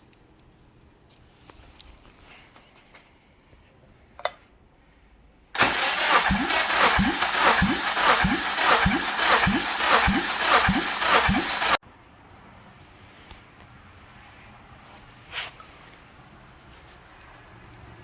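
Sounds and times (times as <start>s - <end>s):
starter motor cranking engine: 5.6s - 11.8s.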